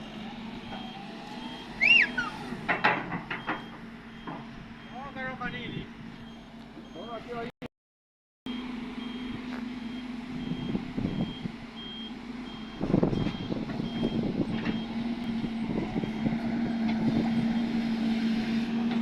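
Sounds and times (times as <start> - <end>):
diesel engine rumbling: 0.0 - 7.6, 8.5 - 19.0
reversing alarm beeping: 0.6 - 2.4, 3.3 - 5.3, 8.5 - 15.4.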